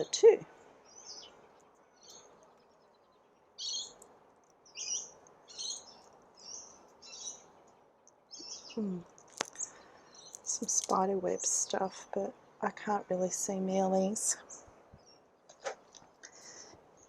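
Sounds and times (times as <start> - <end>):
bird chirping: 0.8 - 12.6, 14.0 - 15.6.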